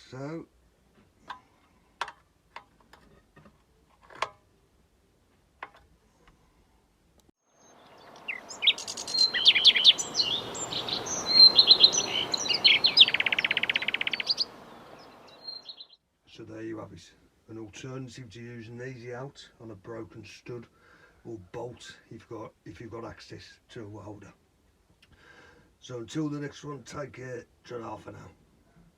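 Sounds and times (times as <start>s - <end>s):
steady background hiss: 6.7s - 28.5s
bird singing: 7.5s - 16.0s.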